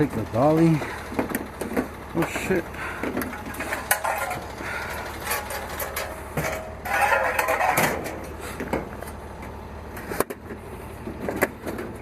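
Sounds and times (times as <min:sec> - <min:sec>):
metal hand truck rattling: 0:00.0 - 0:09.2.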